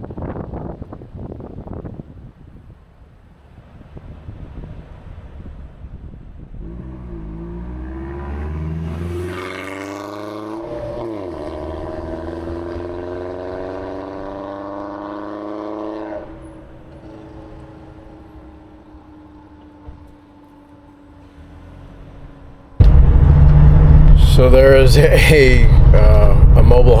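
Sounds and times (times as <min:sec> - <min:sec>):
road noise: 0:00.0 - 0:27.0
vehicle engine revving: 0:06.6 - 0:19.9, 0:21.2 - 0:27.0.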